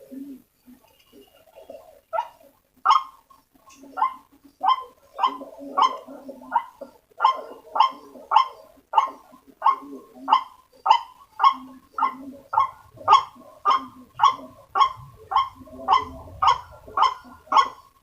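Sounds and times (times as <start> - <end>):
bird harsh calls: 0.6 - 18.0
lower bird notes: 3.6 - 18.0.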